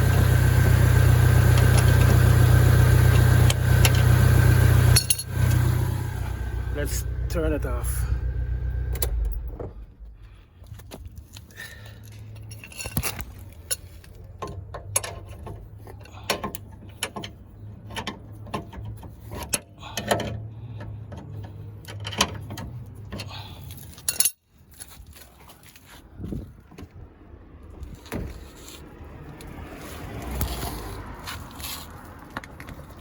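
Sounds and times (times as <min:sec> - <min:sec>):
car engine running: 0:00.0 - 0:10.4
light metallic clicks and clinks: 0:12.0 - 0:17.4, 0:18.0 - 0:24.4.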